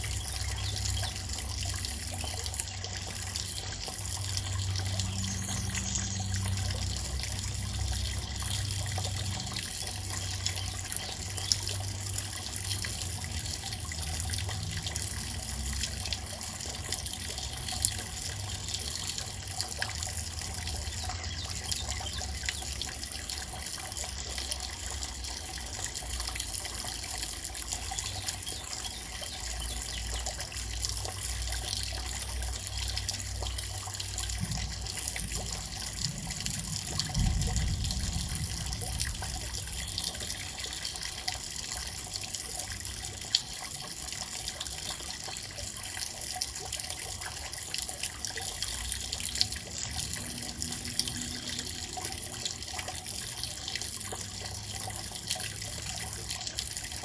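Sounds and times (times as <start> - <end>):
steady rain falling: 34.0 - 41.6
low rumble: 34.3 - 40.6.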